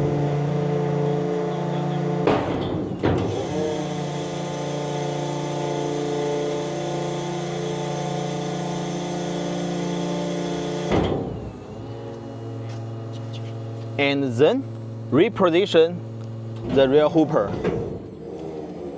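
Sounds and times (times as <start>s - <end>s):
hydraulic power unit humming: 0.0s - 18.9s
metal clunk: 2.3s - 3.4s, 10.8s - 11.6s, 16.6s - 18.1s.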